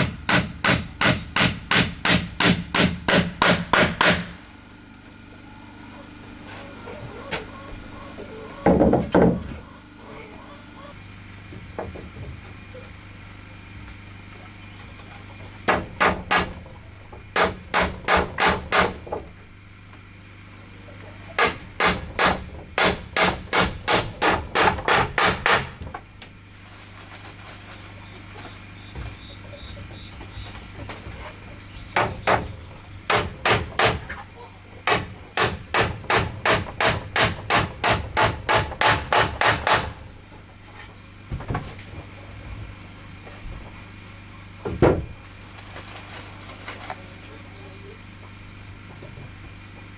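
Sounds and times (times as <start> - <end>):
hammer striking wood: 0.0 - 4.4, 15.7 - 16.6, 17.4 - 19.1, 21.4 - 25.8, 32.0 - 34.2, 34.8 - 40.0.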